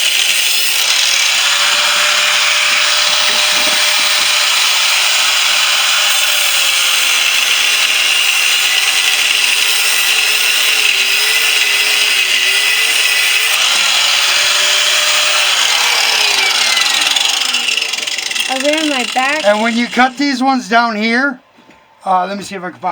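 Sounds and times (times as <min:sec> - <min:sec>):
angle grinder cutting steel: 0:00.0 - 0:20.6.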